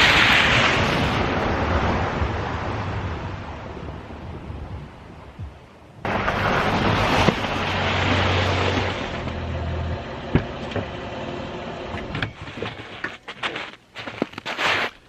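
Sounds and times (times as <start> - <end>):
tyre and road noise: 0.0 - 15.0
low engine hum: 1.0 - 13.0.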